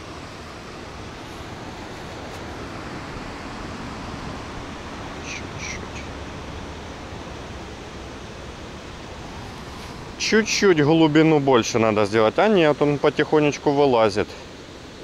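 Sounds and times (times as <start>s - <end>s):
outdoor background hiss: 0.0s - 15.0s
bird calls: 5.2s - 6.2s.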